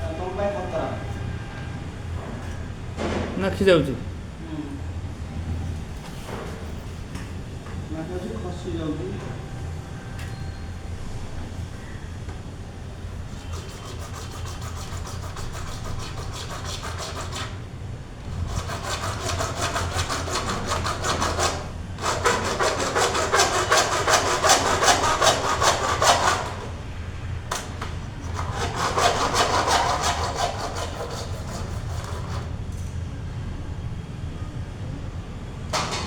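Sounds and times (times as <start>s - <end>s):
hand sawing: 13.3s - 26.8s, 27.5s - 32.6s.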